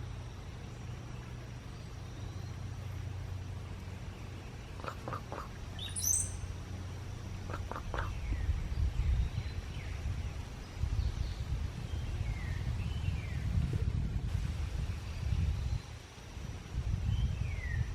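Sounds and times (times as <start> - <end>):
bird gurgling song: 0.0 - 13.6
steady low rumble: 0.0 - 17.9
high bird whistle: 5.8 - 6.5.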